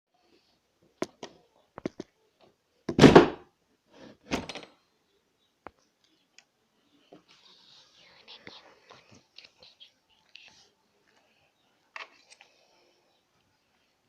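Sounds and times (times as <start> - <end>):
loud thumps: 2.9 - 3.4.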